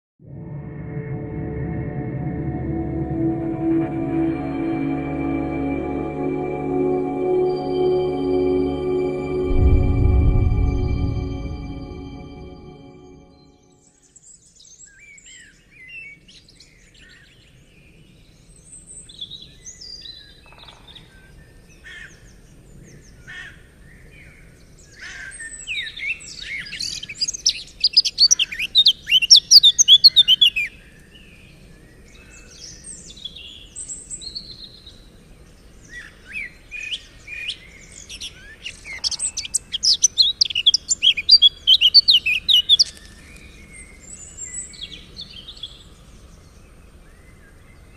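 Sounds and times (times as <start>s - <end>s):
songbirds singing and chirping: 26.8s - 47.9s.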